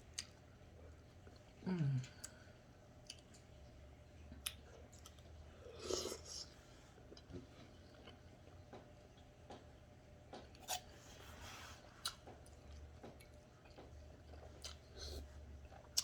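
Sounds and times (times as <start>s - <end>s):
quiet chewing: 11.8s - 16.0s.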